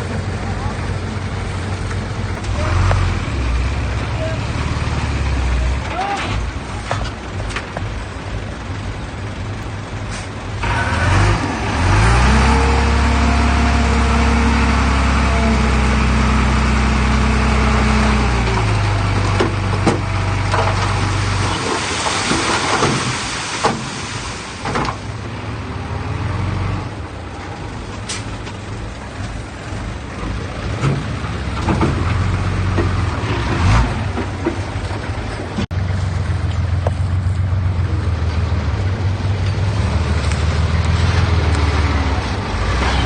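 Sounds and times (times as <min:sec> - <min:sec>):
heavy diesel machinery drone: 0:00.0 - 0:21.8.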